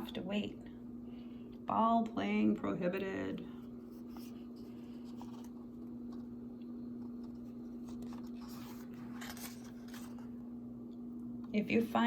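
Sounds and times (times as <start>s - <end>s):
low electrical hum: 0.0s - 12.0s
book page turning: 3.9s - 6.3s, 7.0s - 10.4s
paper rustling: 7.0s - 10.3s.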